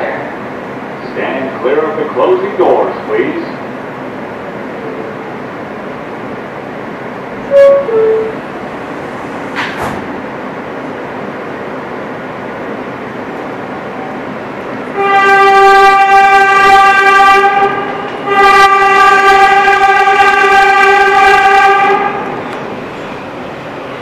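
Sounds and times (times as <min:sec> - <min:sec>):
moving train running noise: 0:00.0 - 0:24.0
subway train horn blasts: 0:07.4 - 0:08.8, 0:14.8 - 0:22.6.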